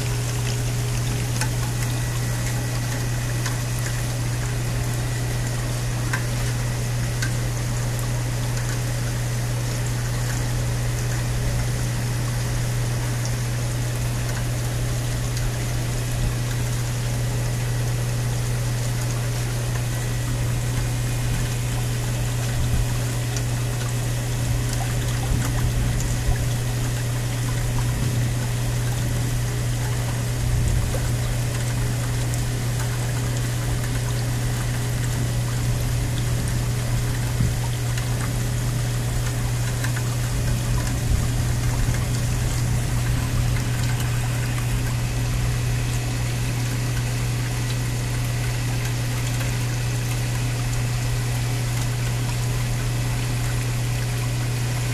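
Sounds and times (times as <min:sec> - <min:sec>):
constant low hum: 0:00.0 - 0:54.9
storm rain pouring: 0:29.0 - 0:32.8, 0:33.6 - 0:46.2.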